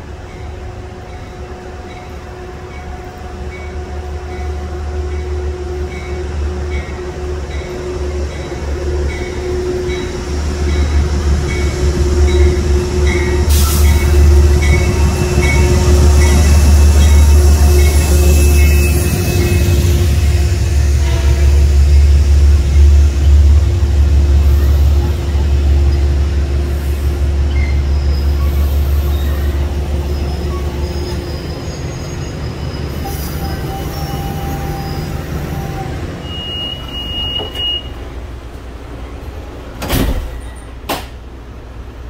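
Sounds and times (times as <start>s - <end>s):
train rumbling along rails: 0.0s - 42.0s
brief high squeal: 27.5s - 38.0s.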